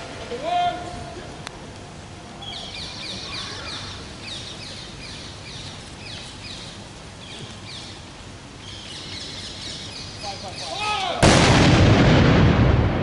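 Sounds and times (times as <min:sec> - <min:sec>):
outdoor background noise: 0:00.0 - 0:13.0
songbird chirping: 0:02.3 - 0:11.1.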